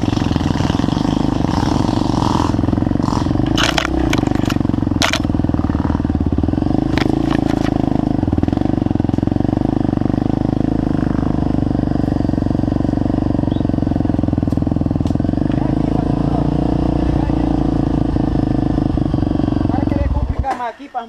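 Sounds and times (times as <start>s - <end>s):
motorcycle engine idling: 0.0s - 21.0s
sharp clacks: 3.1s - 5.3s.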